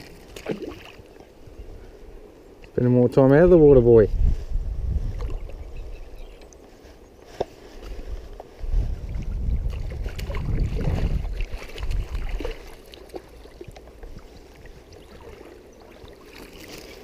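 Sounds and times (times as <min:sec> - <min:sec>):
faint stream water: 0:00.0 - 0:17.0
wind buffeting on microphone: 0:03.2 - 0:06.8, 0:07.6 - 0:12.8.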